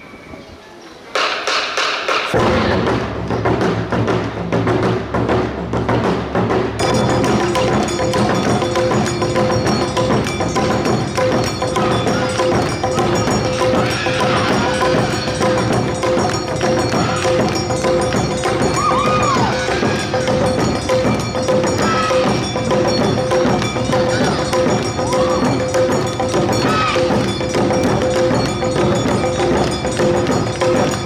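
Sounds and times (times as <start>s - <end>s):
drums: 1.0s - 31.0s
bamboo flute: 6.8s - 30.9s
clanging hand bell: 6.8s - 31.0s.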